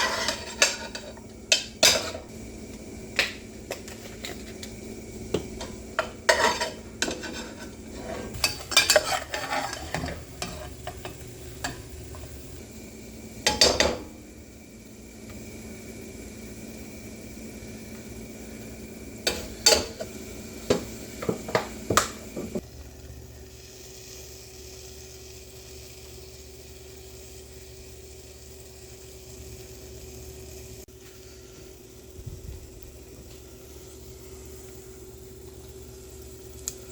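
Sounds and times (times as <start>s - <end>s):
utensil scraping and clinking in pot: 0.0s - 2.3s, 3.7s - 12.4s, 19.2s - 20.1s
steady background hum: 0.0s - 36.9s.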